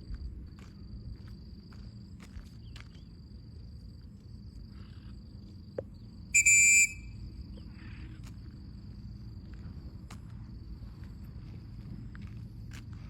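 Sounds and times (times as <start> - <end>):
insects chirring: 0.0 - 13.0
loud shrill whistle: 6.3 - 7.2.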